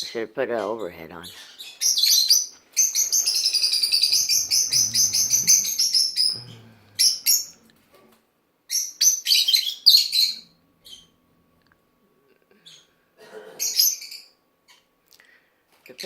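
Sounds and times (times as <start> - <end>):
lovebirds chirping: 0.5 - 7.7, 8.7 - 11.2.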